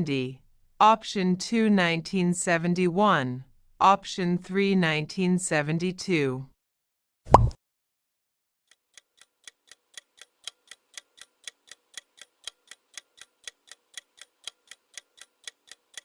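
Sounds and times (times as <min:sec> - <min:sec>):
clock ticking: 0:08.7 - 0:16.0.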